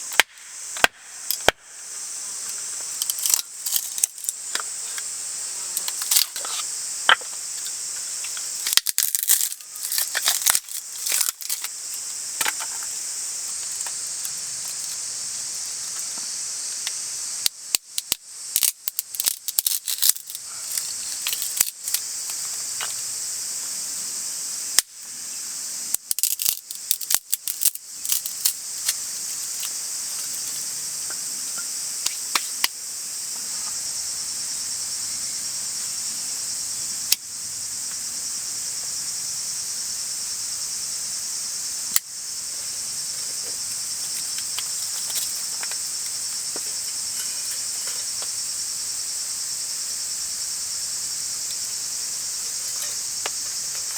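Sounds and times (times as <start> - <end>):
insect chorus drone: 0.0 - 53.9.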